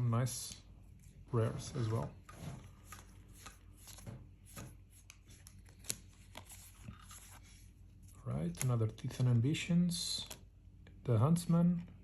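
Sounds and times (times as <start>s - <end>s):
trading cards snapping and rustling: 2.8s - 7.4s.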